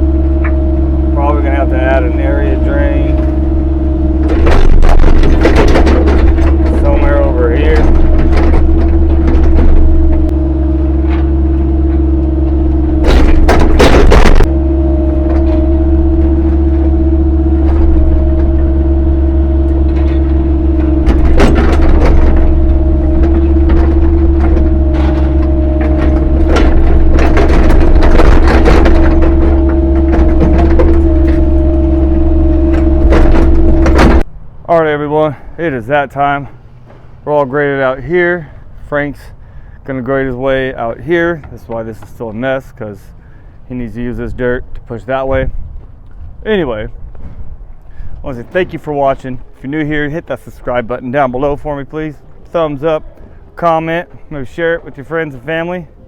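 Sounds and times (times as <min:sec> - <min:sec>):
knocks and scrapes on rocky soil: 0:00.0 - 0:10.5, 0:11.1 - 0:34.3
excavator engine rumbling: 0:00.0 - 0:56.0.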